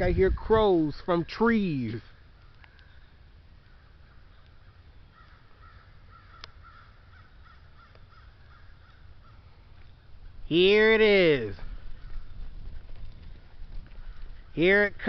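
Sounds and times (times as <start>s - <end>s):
crows cawing: 2.2s - 9.8s, 11.6s - 12.5s, 13.8s - 14.6s.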